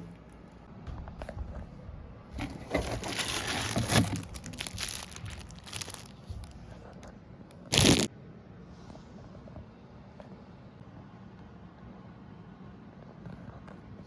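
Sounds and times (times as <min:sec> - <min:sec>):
packaging crinkling: 0:02.4 - 0:06.7, 0:07.7 - 0:08.1.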